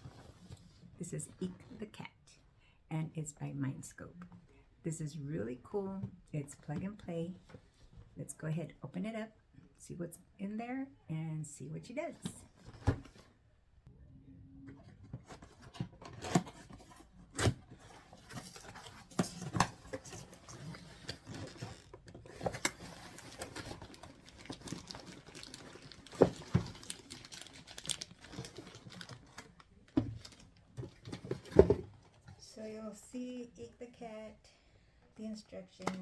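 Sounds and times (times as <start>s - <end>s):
cardboard packaging rustling: 15.2s - 32.2s.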